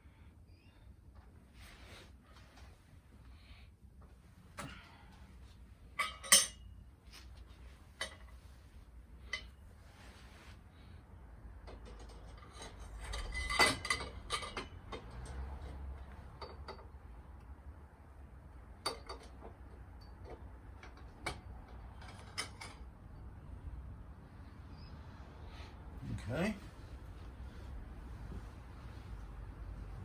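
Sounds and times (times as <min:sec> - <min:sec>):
metal exhaust pipes clinking: 0:05.9 - 0:06.7, 0:09.2 - 0:09.6, 0:11.6 - 0:17.0, 0:18.8 - 0:23.0.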